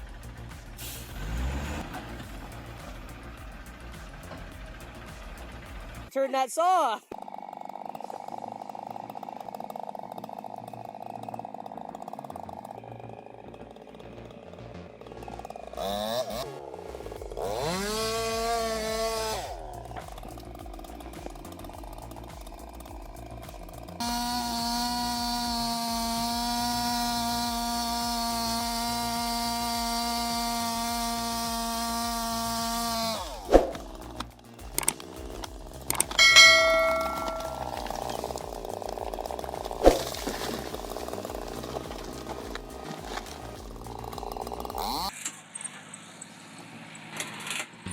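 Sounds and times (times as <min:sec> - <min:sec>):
chainsaw engine revving: 0:00.0 - 0:06.1, 0:07.0 - 0:47.9
ringing tone: 0:36.2 - 0:38.2.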